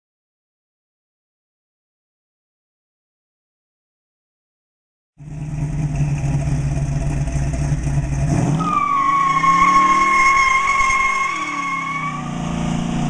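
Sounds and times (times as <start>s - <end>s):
car engine revving: 5.2s - 13.0s
high-pitched tire squeal: 8.3s - 13.0s.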